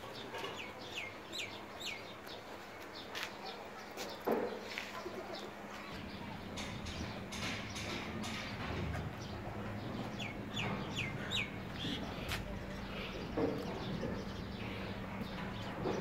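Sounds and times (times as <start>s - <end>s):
steady low hum: 5.1s - 16.0s
bird chirping: 9.2s - 16.0s.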